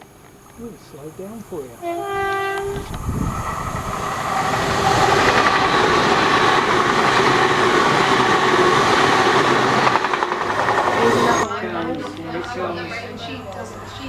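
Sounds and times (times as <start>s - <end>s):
high ringing of wheels and rails: 0.0s - 14.0s
train wheels clattering over rail joints: 0.0s - 14.0s.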